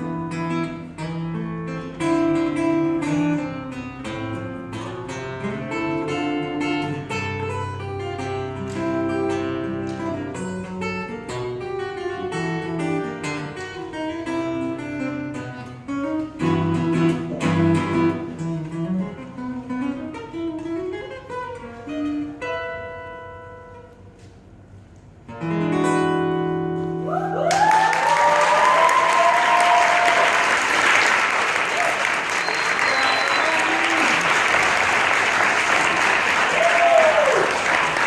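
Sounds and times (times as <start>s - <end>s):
fingerstyle acoustic guitar: 0.0s - 27.1s
audience applause and whistles: 27.4s - 38.0s.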